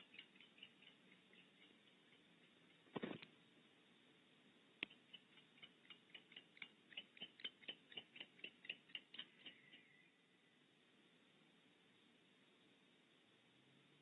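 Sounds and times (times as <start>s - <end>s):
owl clicking chirps: 0.0s - 2.6s, 4.9s - 10.0s.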